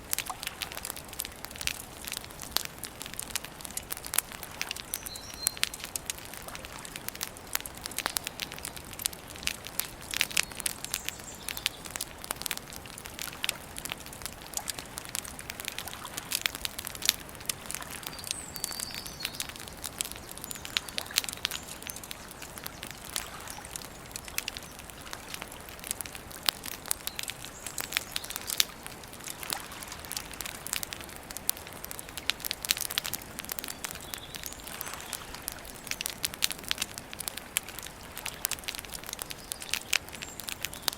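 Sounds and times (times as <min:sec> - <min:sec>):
campfire crackling and popping: 0:00.0 - 0:40.9
faint bird chirps: 0:04.8 - 0:05.8, 0:18.0 - 0:24.8.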